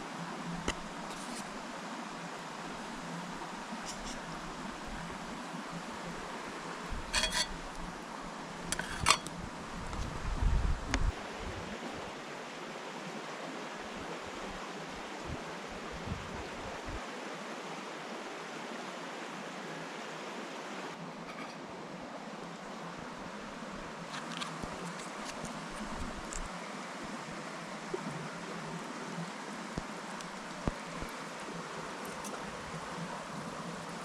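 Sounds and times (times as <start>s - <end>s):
metal cookware clinking: 7.1s - 7.6s, 8.7s - 9.3s.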